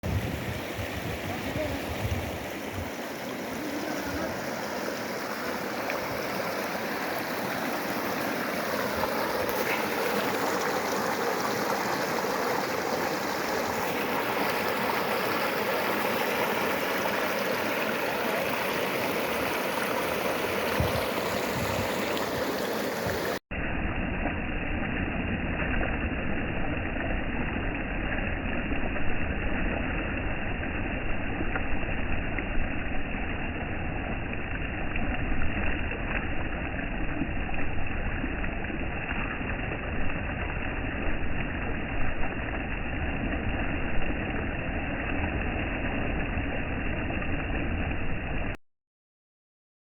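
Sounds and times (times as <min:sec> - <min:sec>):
stream water rushing: 0:00.0 - 0:24.8.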